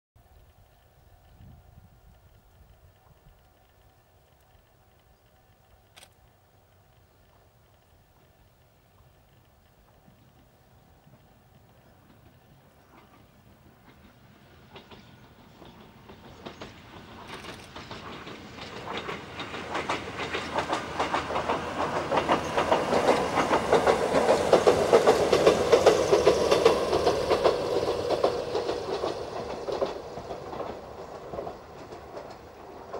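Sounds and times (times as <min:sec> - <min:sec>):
train wheels clacking: 0:06.9 - 0:32.9.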